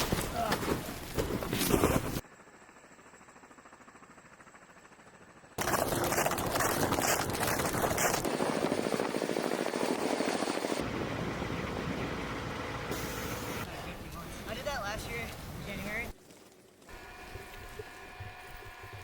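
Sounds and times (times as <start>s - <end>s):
aircraft engine: 7.1s - 13.7s.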